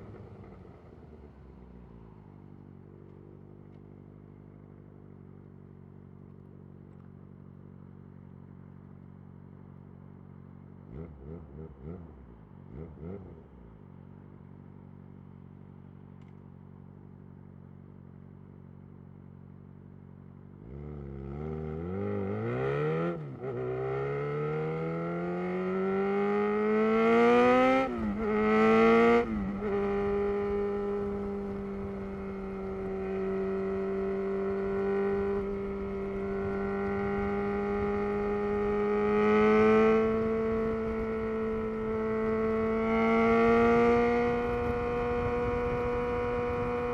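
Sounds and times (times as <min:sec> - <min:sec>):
motorcycle engine revving: 0:20.6 - 0:46.9.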